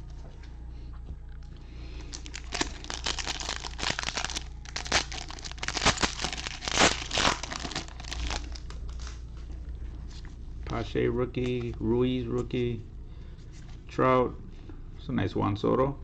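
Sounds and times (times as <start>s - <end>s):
plastic wrapper crinkling and tearing: 2.0s - 9.4s.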